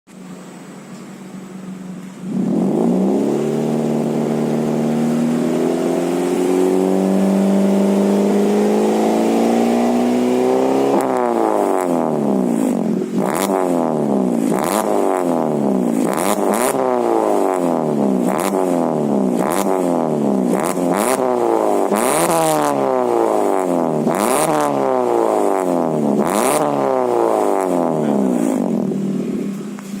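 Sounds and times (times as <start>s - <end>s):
car engine revving: 0.1s - 30.0s.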